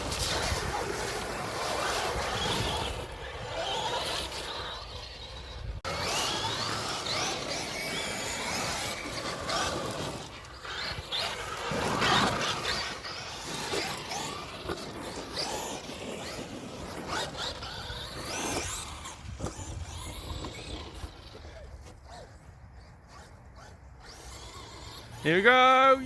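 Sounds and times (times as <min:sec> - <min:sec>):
toy trucks rattling and knocking: 0:00.0 - 0:25.3
electric motors whining: 0:00.0 - 0:26.0.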